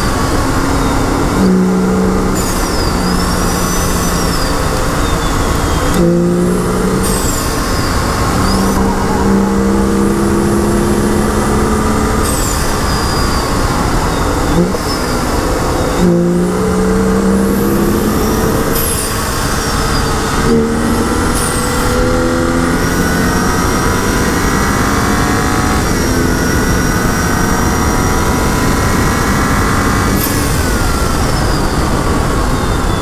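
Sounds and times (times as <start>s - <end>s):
car engine revving under full throttle: 0.0s - 33.0s
road and wind noise: 0.0s - 33.0s.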